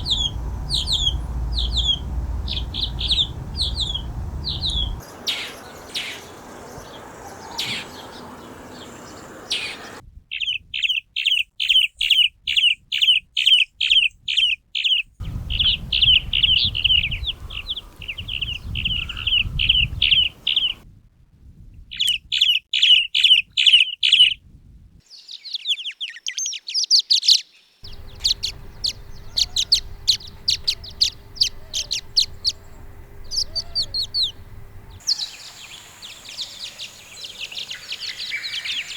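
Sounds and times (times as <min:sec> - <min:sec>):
swallow calls: 0:00.0 - 0:10.0, 0:15.2 - 0:20.8, 0:27.9 - 0:38.9
swallows chattering: 0:00.0 - 0:10.0, 0:15.2 - 0:20.8, 0:25.2 - 0:38.9.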